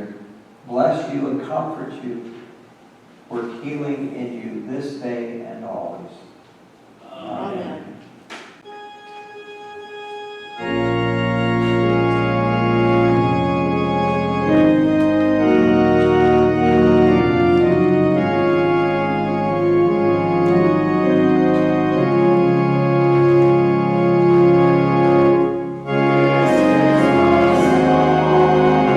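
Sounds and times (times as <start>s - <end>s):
church organ chords: 8.6s - 28.9s.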